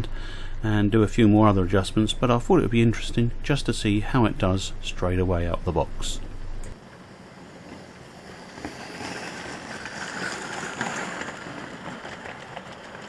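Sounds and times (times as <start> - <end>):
model train wheels rattling: 7.4 - 13.0.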